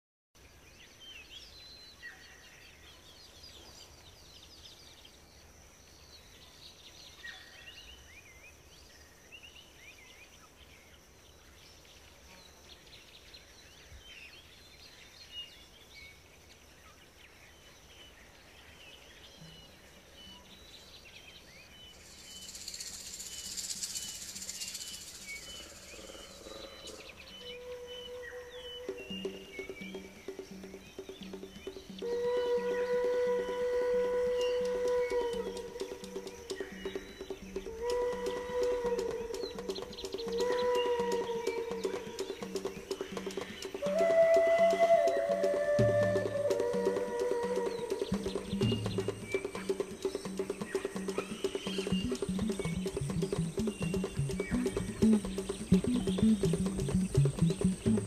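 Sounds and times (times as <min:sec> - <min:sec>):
birds chirping: 0:00.4 - 0:58.0
low held music tones: 0:23.1 - 0:58.0.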